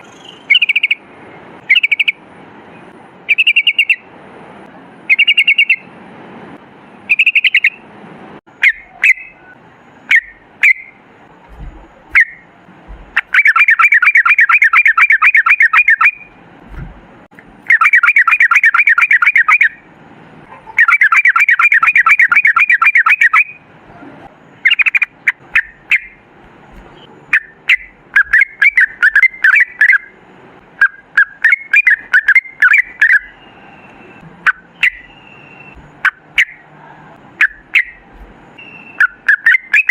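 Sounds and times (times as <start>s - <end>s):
bulbul chattering trills: 0.0s - 2.2s, 3.3s - 4.1s, 5.1s - 5.9s, 7.1s - 7.8s, 8.5s - 11.0s, 11.9s - 16.4s, 17.6s - 23.6s, 24.5s - 30.2s, 30.8s - 36.7s, 37.4s - 39.9s
bird chirps and clicks: 7.1s - 7.8s, 20.8s - 23.5s, 24.6s - 30.1s, 30.8s - 36.6s, 37.4s - 39.9s.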